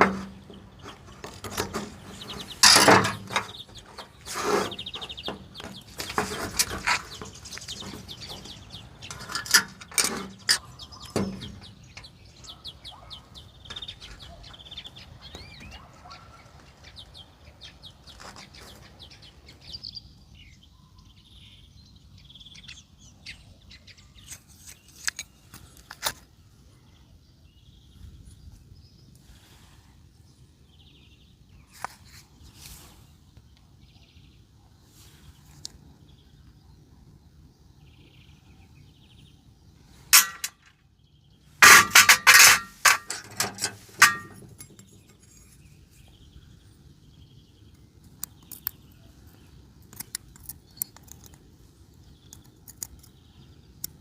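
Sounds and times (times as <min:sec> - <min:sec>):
metal tools clinking: 0:00.0 - 0:08.0, 0:09.0 - 0:12.1, 0:40.2 - 0:40.7, 0:41.6 - 0:45.6
birds chirping: 0:00.0 - 0:54.0
loud metal clank: 0:02.6 - 0:05.5, 0:40.2 - 0:40.6, 0:41.6 - 0:44.8.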